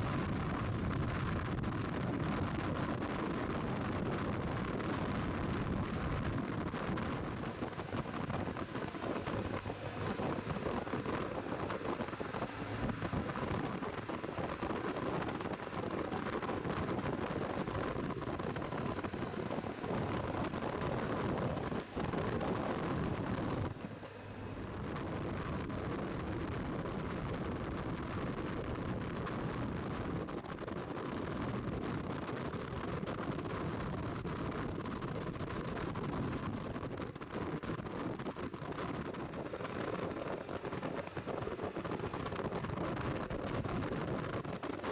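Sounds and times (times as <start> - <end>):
motorcycle engine running: 0.0 - 31.8
wind rushing over microphone: 0.0 - 44.9.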